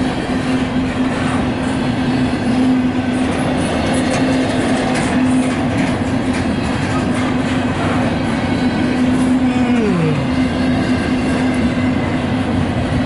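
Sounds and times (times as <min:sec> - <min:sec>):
train wheels on rails: 0:00.0 - 0:13.0
low drone: 0:07.8 - 0:13.0.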